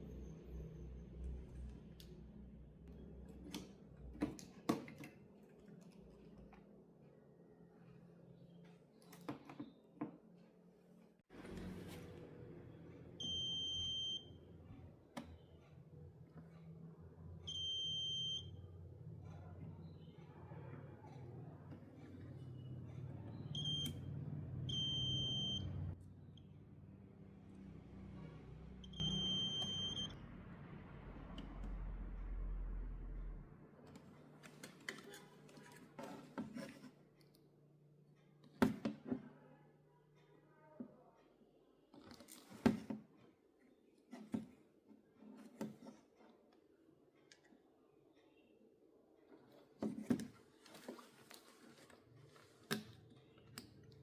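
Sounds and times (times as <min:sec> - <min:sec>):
low hum: 0:22.2 - 0:33.7
high-pitched electronic beeps: 0:28.8 - 0:30.2.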